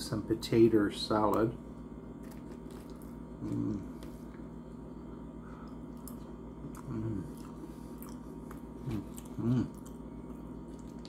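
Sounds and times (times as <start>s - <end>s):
man chewing food: 2.1s - 11.0s
man humming: 3.4s - 4.1s, 6.6s - 7.6s, 8.8s - 9.8s.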